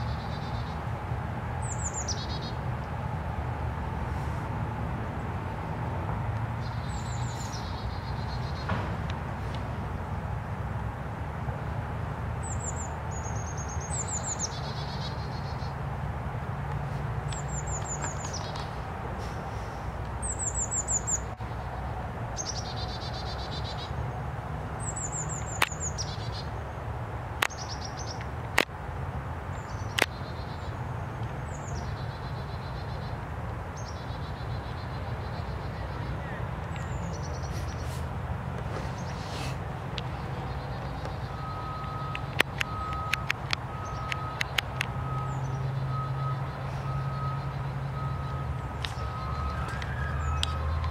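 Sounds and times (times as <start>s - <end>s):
songbird singing: 0.0s - 3.0s, 6.4s - 10.3s, 12.4s - 15.8s, 16.6s - 28.7s, 29.5s - 50.9s
sharp clicks: 29.9s - 30.2s, 41.8s - 45.3s.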